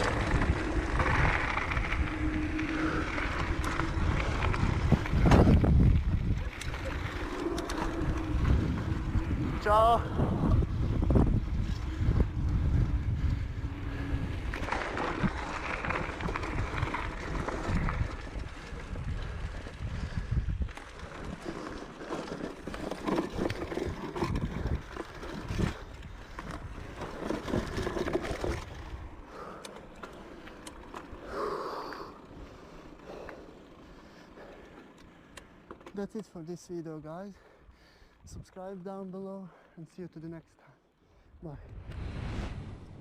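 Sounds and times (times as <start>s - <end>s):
wind buffeting microphone: 0.0s - 29.6s
bicycle rattling over dirt trail: 0.0s - 41.7s.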